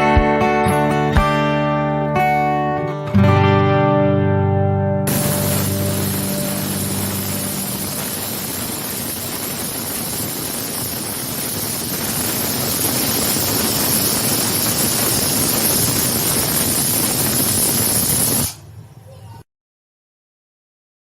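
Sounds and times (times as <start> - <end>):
cooking hiss on stove: 5.1 - 18.7.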